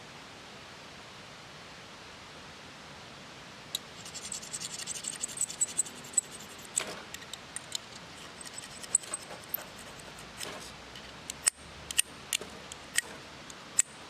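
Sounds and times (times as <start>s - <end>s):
light scraping and ticking: 3.8s - 14.0s.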